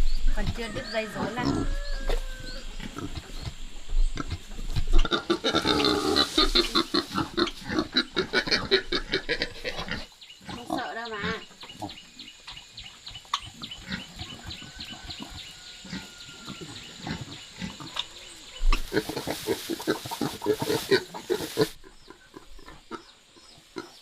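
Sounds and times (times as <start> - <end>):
piglets squealing and grunting: 0.8 - 3.4, 4.2 - 12.0.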